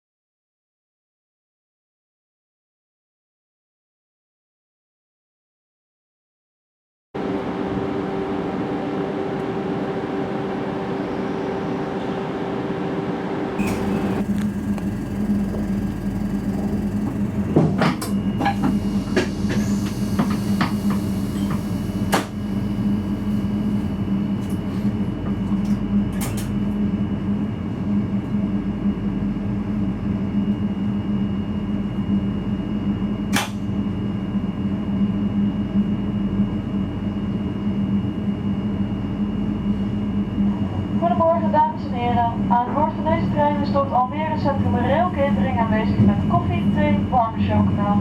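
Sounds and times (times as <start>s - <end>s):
electrical and mechanical hum: 12.3s - 48.0s
faint high whine: 13.6s - 20.6s.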